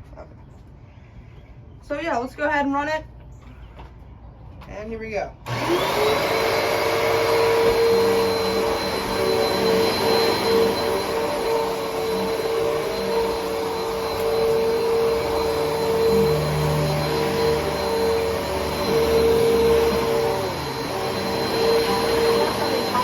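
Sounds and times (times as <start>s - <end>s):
vacuum cleaner running: 5.5s - 23.0s.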